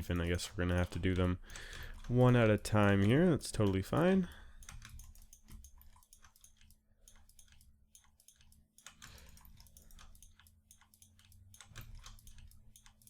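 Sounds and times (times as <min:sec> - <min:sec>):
mouse and keyboard clicking: 0:04.6 - 0:13.0.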